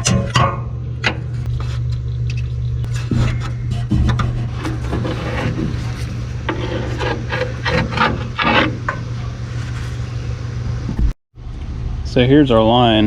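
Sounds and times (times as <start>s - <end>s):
steady low hum: 0.0s - 13.0s
hand tools scraping metal fittings: 2.9s - 9.9s.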